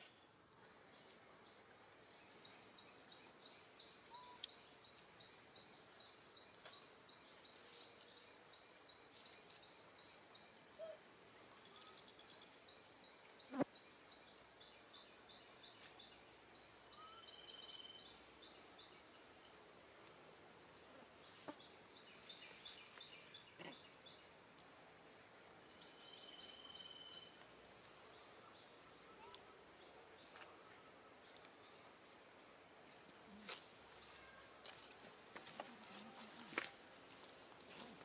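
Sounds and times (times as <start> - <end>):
bird chirping: 2.1 - 11.0, 11.6 - 19.0, 25.7 - 27.4.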